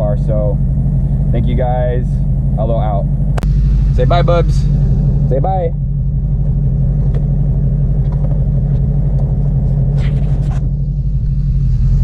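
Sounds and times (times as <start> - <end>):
car engine low drone: 0.0 - 12.0
brief rustle: 9.9 - 10.7.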